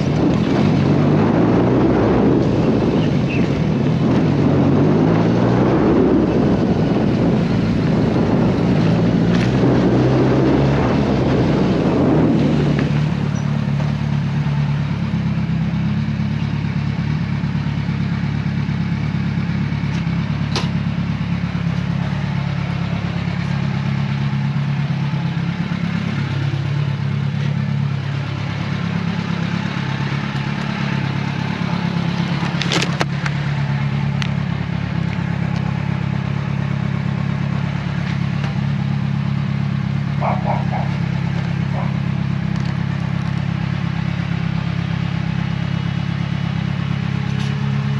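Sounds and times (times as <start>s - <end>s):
wind rushing over microphone: 0.0s - 13.7s
motorcycle engine running: 0.0s - 47.9s.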